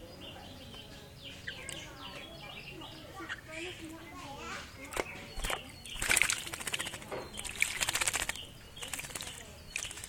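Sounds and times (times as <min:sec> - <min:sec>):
bird wings fluttering and splashing: 0:04.9 - 0:10.0.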